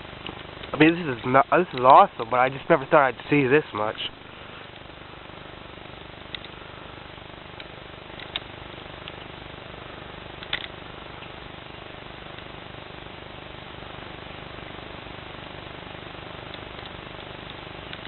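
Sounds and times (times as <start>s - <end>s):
outdoor background hiss: 0.0s - 18.0s
faint clicks: 6.3s - 6.6s, 7.6s - 9.3s, 16.5s - 18.0s.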